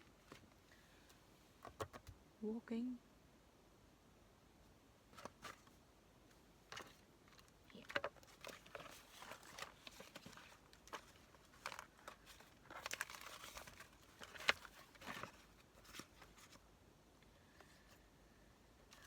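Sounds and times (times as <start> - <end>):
paper rustling and crinkling: 5.1 - 5.8, 6.7 - 16.7.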